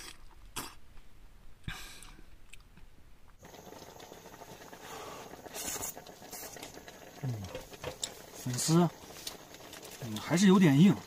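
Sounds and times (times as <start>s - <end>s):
steady hiss: 3.4s - 11.0s.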